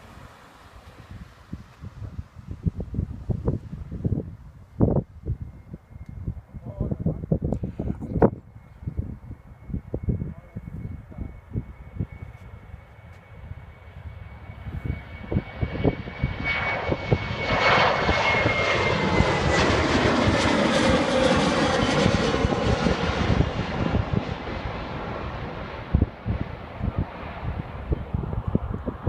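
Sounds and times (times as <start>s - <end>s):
jet engine passing by: 0.0s - 29.0s
wind buffeting microphone: 0.0s - 29.0s.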